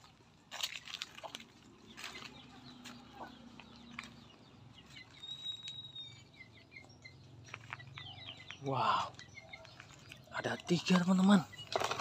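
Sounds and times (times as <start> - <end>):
faint bird chirps: 1.9 - 12.0
bird whistle: 5.1 - 6.3.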